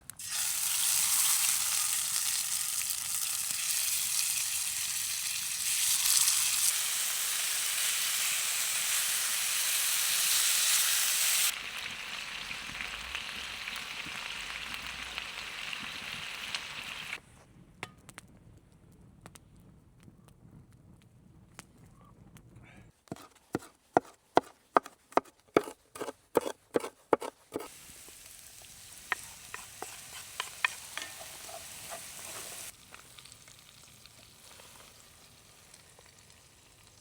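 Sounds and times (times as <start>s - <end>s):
chicken wings sizzling over fire: 0.0s - 17.2s, 27.7s - 37.0s.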